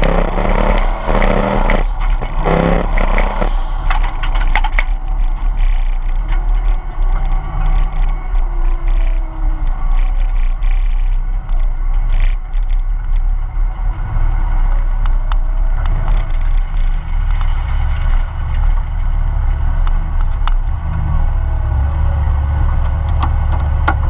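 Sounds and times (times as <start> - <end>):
sharp clicks and rattles: 0.0 - 21.1, 22.6 - 24.0
car engine running at low revs: 0.0 - 24.0.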